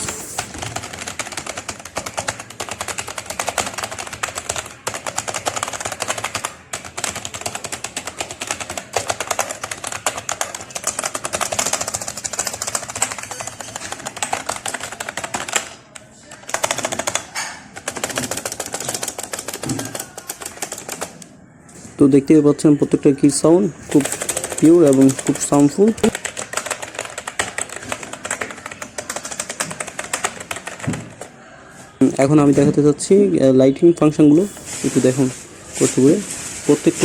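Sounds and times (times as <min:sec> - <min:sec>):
fast keyboard typing: 0:00.0 - 0:21.3, 0:23.8 - 0:31.3.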